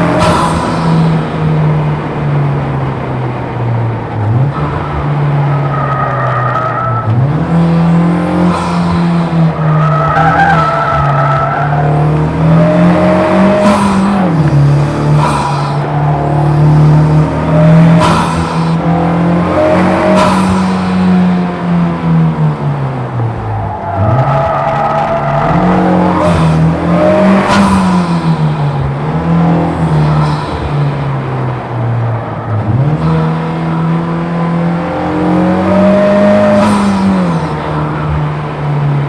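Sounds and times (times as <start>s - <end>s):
car engine running hard: 0.0s - 39.0s
tires squealing: 0.0s - 39.0s.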